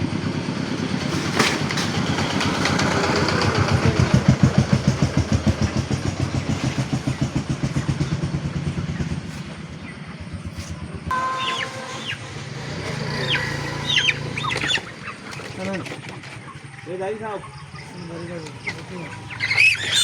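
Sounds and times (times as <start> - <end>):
engine chugging: 0.0 - 20.0.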